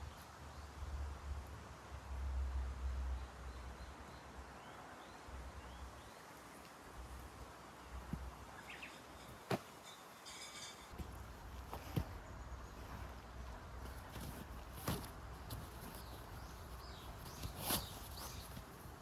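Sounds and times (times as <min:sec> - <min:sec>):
small bird chirping: 0:08.5 - 0:10.9, 0:15.6 - 0:18.8.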